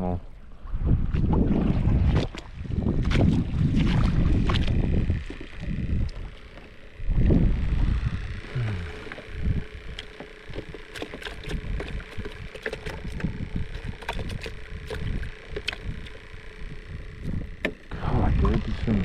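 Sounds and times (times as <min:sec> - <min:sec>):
wind buffeting microphone: 0:00.6 - 0:06.4, 0:07.0 - 0:08.5, 0:11.5 - 0:19.0.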